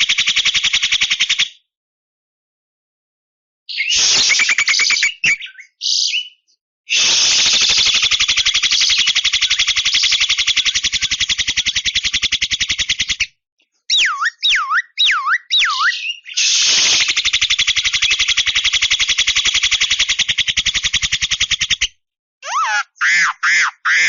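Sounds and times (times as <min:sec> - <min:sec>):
siren-like bird whistles: 0:03.8 - 0:06.4, 0:13.9 - 0:16.3.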